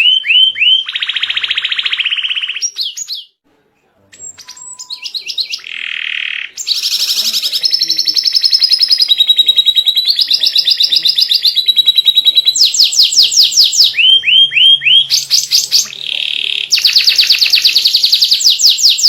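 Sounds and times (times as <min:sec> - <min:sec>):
canary singing: 0:00.0 - 0:03.4, 0:04.0 - 0:19.0.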